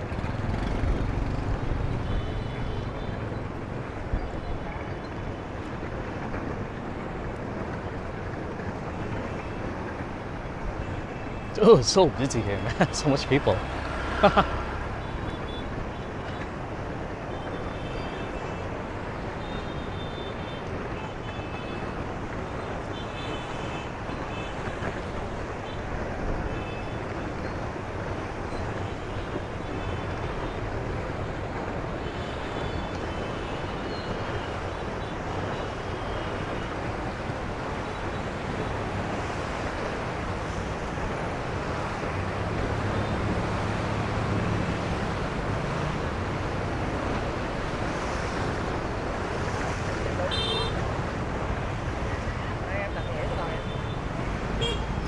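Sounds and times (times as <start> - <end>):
low engine hum: 38.4 - 49.4.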